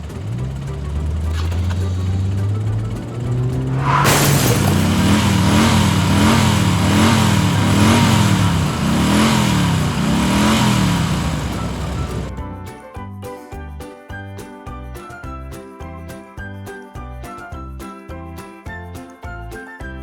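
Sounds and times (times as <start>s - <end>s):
engine pitch rising and falling: 0.0s - 12.3s.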